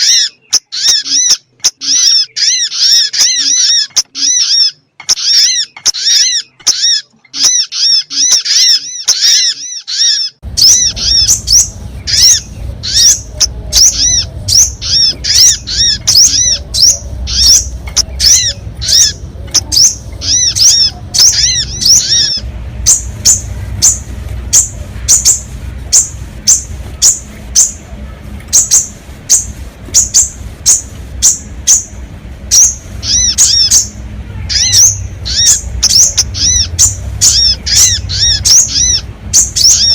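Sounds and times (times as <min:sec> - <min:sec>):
small bird chirps: 0:00.0 - 0:39.9
low rumble: 0:10.4 - 0:39.9.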